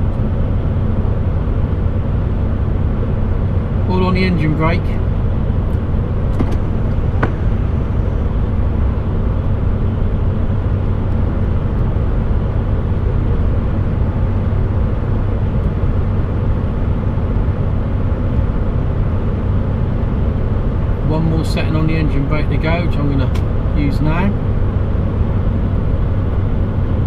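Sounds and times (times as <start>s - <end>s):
truck diesel engine droning: 0.0s - 27.0s
tyre and road noise: 5.6s - 9.1s.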